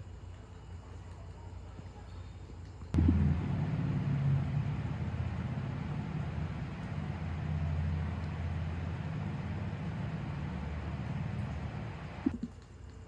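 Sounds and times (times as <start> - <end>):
car driving rumble: 3.0 - 12.3.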